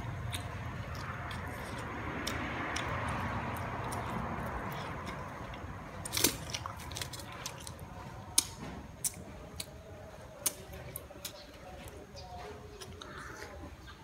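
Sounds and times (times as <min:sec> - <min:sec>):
chewing chicken wings: 0:00.0 - 0:14.0
sharp crunches: 0:06.0 - 0:09.8.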